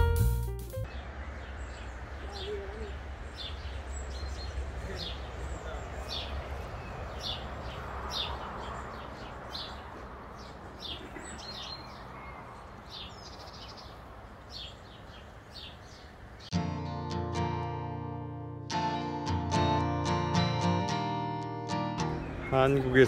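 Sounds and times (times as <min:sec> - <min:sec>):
guitar music: 0:00.0 - 0:00.9, 0:16.5 - 0:23.0
bird chirping: 0:00.8 - 0:16.5, 0:22.0 - 0:23.0
outdoor background noise: 0:00.8 - 0:16.6.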